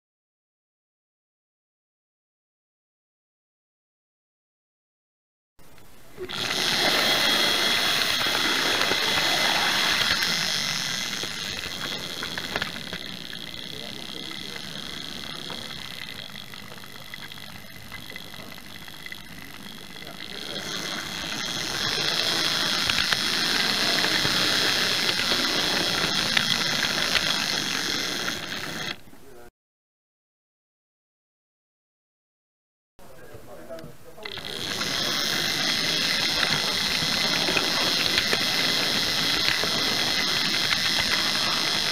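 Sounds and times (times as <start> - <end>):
wheels clicking on rails: 5.8 - 29.1, 33.8 - 41.9
model train motor whirring: 6.2 - 29.1, 33.7 - 41.9.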